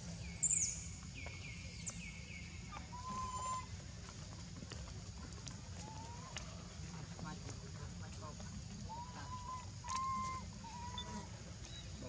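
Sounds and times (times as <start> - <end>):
birds whistling downward notes: 0.0 - 3.7, 8.9 - 12.0
steady low bird whistle: 0.0 - 3.8, 8.8 - 12.0.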